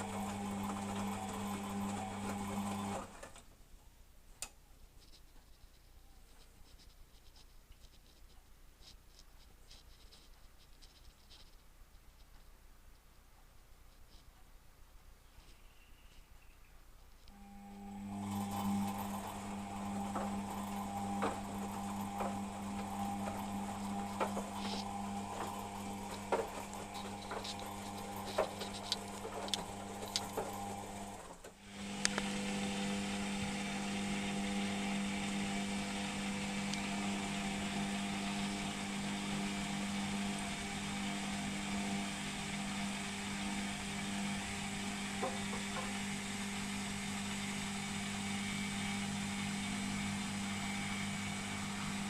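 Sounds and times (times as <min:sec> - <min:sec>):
washing machine motor hum: 0:00.0 - 0:03.5, 0:17.3 - 0:52.0.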